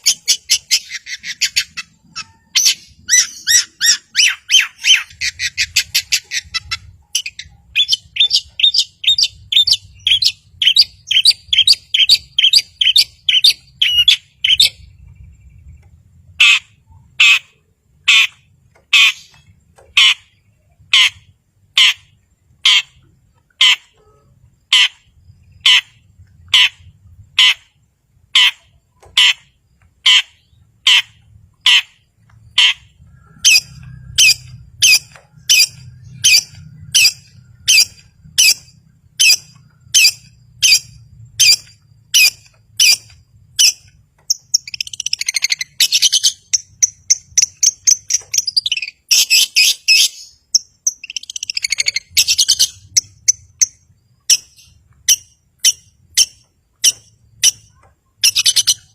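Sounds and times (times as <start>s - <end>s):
bird sharp calls and chattering: 0.0s - 58.9s.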